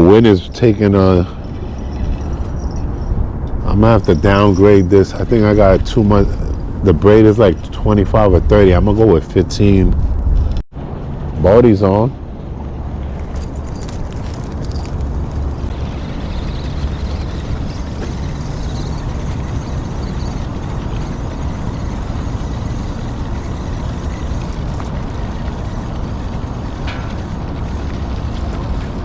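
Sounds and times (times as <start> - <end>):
low rumble: 0.0 - 29.0
high squeak: 0.5 - 7.6, 14.6 - 25.5.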